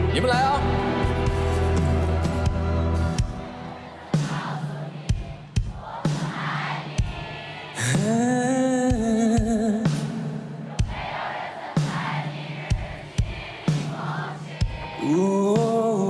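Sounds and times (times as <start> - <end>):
live band playing pop-rock: 0.0 - 4.6.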